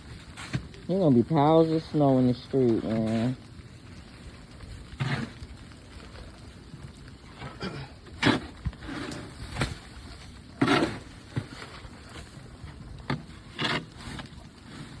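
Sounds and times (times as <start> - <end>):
snow shovel scraping snow: 10.6 - 11.8.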